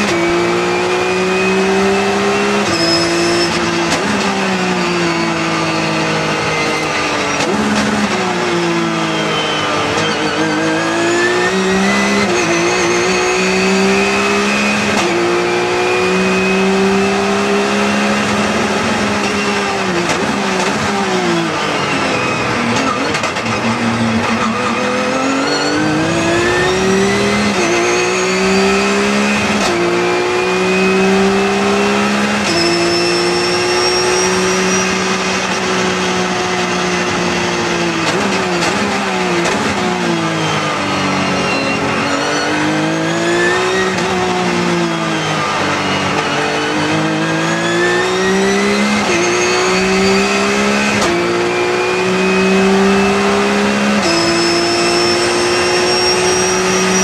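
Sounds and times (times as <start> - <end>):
car engine revving at full throttle: 0.0 - 57.0.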